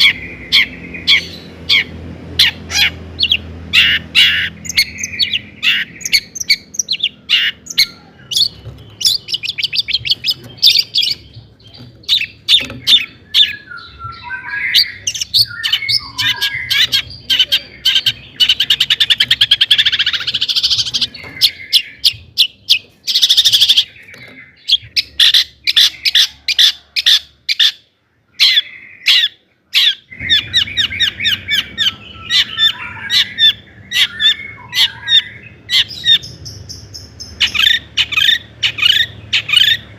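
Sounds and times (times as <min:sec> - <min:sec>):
bird singing sharp chirps: 0:00.0 - 0:26.4.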